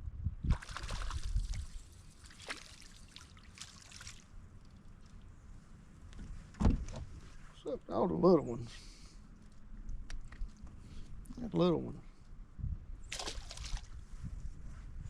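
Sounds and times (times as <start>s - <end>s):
water splashing and trickling: 0.5s - 5.4s, 13.1s - 14.1s
low thump: 6.6s - 7.1s.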